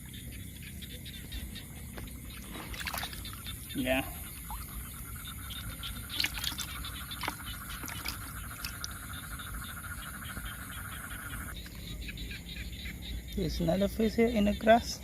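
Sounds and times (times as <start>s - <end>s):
frog trilling: 0.0s - 13.9s
water splashes: 2.2s - 9.4s.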